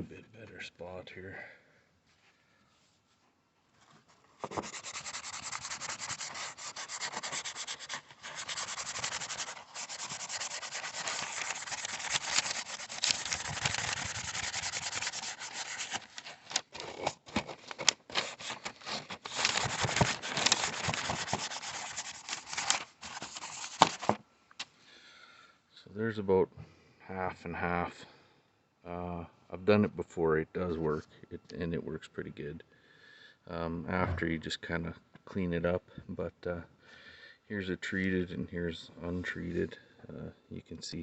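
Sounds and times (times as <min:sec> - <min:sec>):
scouring pad scrubbing plastic: 0:04.4 - 0:16.2, 0:18.2 - 0:24.1.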